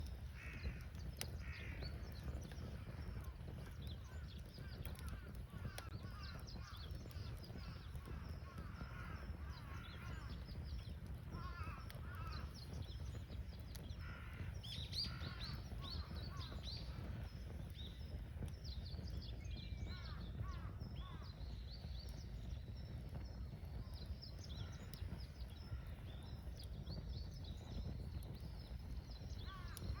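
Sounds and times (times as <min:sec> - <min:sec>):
wood fire crackling: 0:00.0 - 0:30.0
birds chirping and calling: 0:00.3 - 0:17.6.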